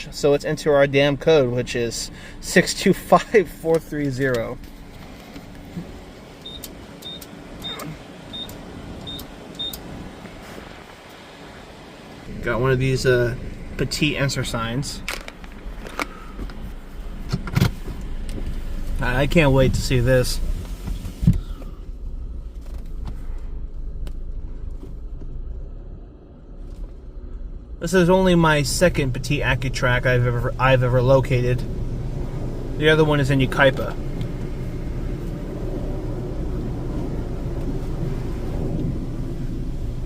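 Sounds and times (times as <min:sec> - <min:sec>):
car engine idling: 0:00.0 - 0:40.0
keypad beeps: 0:06.4 - 0:09.8.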